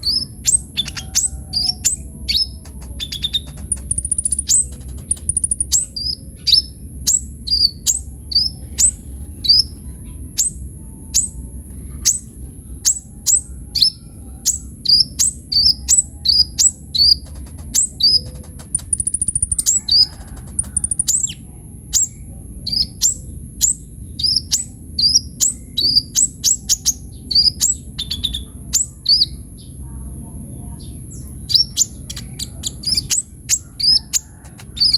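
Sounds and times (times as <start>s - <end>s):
low hum: 0.0s - 8.5s, 16.0s - 21.7s
bird singing sharp high chirps: 0.0s - 9.8s, 12.9s - 21.4s.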